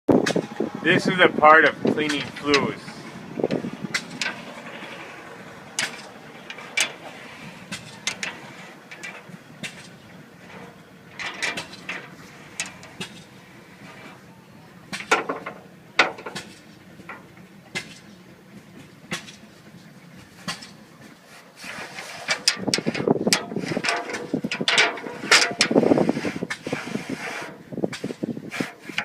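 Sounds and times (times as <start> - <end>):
metal brush scraping tubes: 0.2 - 14.3, 14.9 - 18.2, 19.0 - 29.0
metal clanks and knocks: 1.8 - 14.3, 14.9 - 21.2, 22.2 - 26.6.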